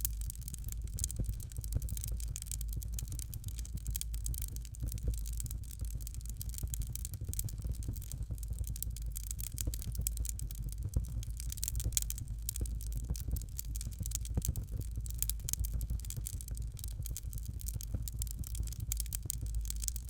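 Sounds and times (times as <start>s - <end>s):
fireplace fire crackling: 0.0s - 20.0s.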